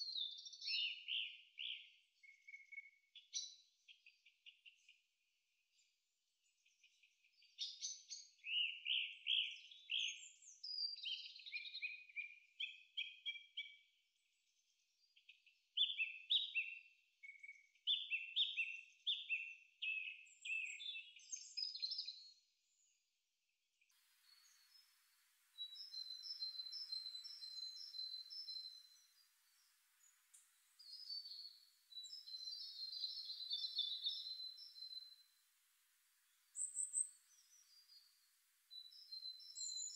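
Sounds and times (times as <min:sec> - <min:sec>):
small birds singing: 0:00.0 - 0:23.1, 0:23.8 - 0:39.9
faint hiss: 0:24.0 - 0:39.9.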